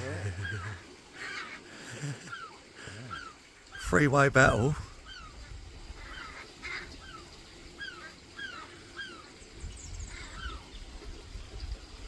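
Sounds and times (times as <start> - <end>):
gull alarm calls: 0.2 - 1.6, 2.2 - 5.4, 6.0 - 7.2.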